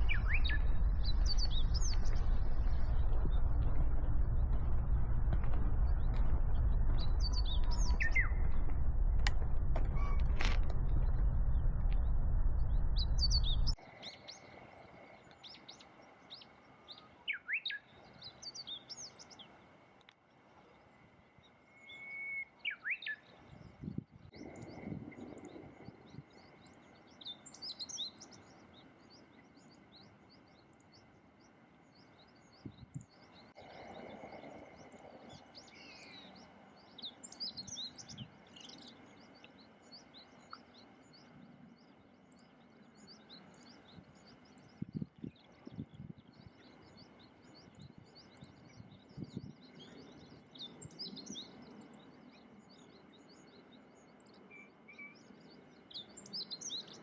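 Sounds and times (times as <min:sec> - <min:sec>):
loud low rumble: 0:00.0 - 0:13.8
songbirds chirping: 0:00.0 - 0:57.0.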